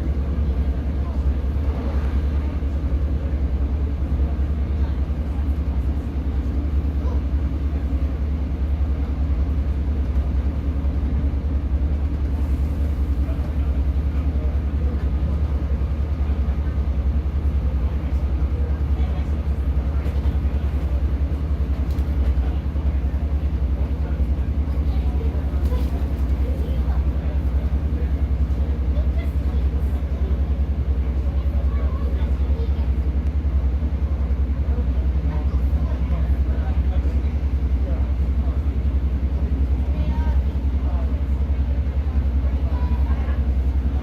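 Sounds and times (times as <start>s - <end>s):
train diesel engine drone: 0.0s - 44.0s.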